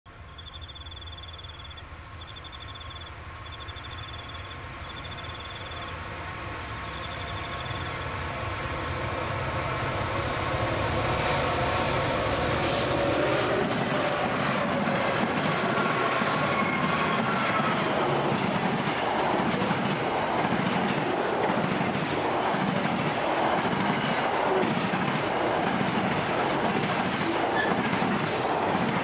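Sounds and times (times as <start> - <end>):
diesel locomotive engine rumble: 0.1 - 29.0
train wheels clicking on rails: 10.8 - 29.0.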